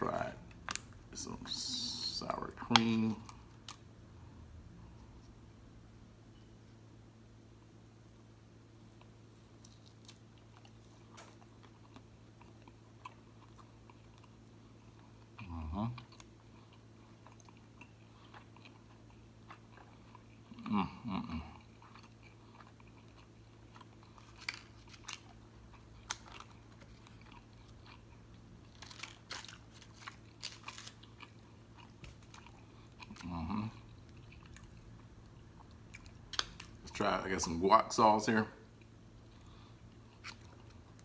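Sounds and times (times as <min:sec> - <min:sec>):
chewing and biting food: 0:08.9 - 0:20.7, 0:21.3 - 0:36.9, 0:38.7 - 0:41.0.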